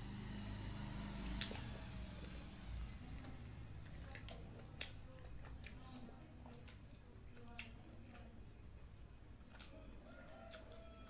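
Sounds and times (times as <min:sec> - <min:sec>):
chewing with wet mouth clicks: 0:02.8 - 0:11.0.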